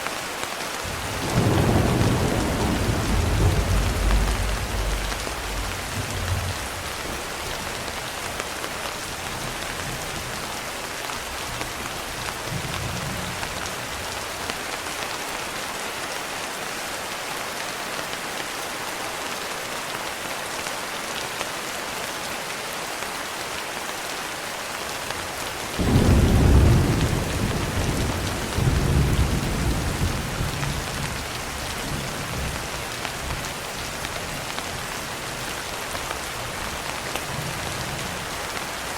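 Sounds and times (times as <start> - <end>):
heavy rain: 0.0 - 38.9
loud peal of thunder: 0.9 - 7.0, 25.8 - 30.9
thunder rumbling: 0.9 - 8.0, 25.8 - 31.3.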